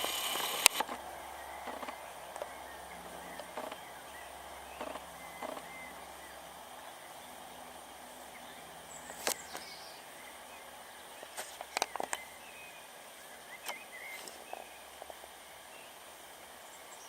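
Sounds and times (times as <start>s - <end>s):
short sharp clicks: 0.0s - 1.1s, 4.8s - 5.9s
steady hiss: 0.0s - 17.0s.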